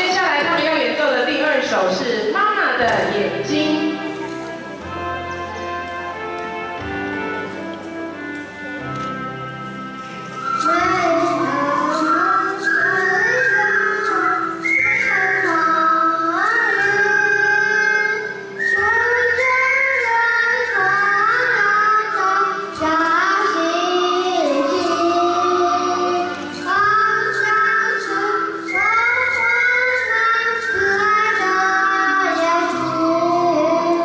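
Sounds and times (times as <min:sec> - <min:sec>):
musical accompaniment: 0:00.0 - 0:34.0
children singing in unison: 0:10.6 - 0:34.0.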